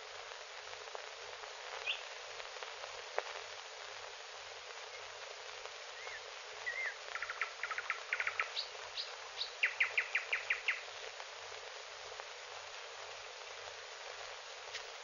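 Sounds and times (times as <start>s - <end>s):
film soundtrack hiss: 0.0s - 15.0s
songbird singing: 1.8s - 2.1s, 4.9s - 5.1s, 5.9s - 10.9s.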